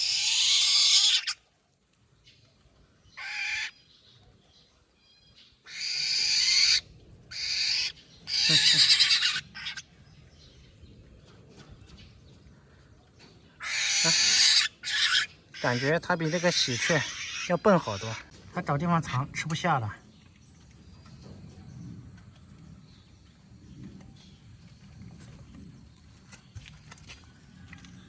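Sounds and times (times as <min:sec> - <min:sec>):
young bird begging calls: 0:00.0 - 0:01.4, 0:03.2 - 0:03.8, 0:05.7 - 0:09.8, 0:13.6 - 0:18.3.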